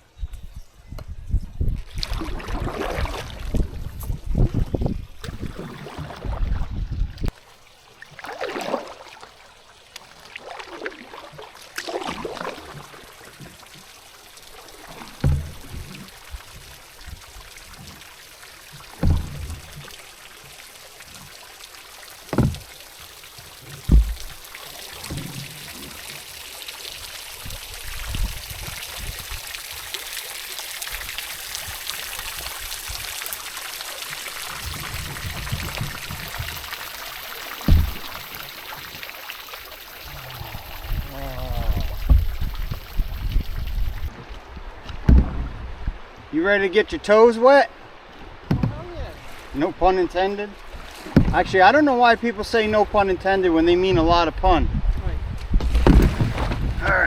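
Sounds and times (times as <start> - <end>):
river water splashing: 1.8 - 53.5, 55.5 - 57.0
dull thumps: 15.2 - 15.9, 19.0 - 19.9, 22.3 - 22.8, 23.7 - 25.5, 37.6 - 38.5, 41.7 - 44.1, 55.5 - 57.0.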